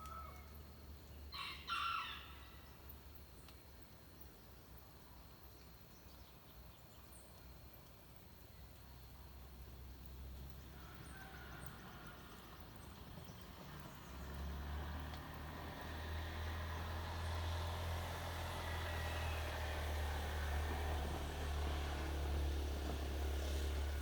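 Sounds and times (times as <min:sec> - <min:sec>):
distant engine drone: 0:09.4 - 0:24.0.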